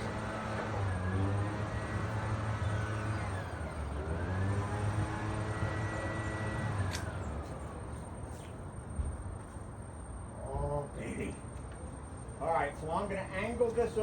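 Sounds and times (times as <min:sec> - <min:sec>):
motor running: 0:00.0 - 0:07.3.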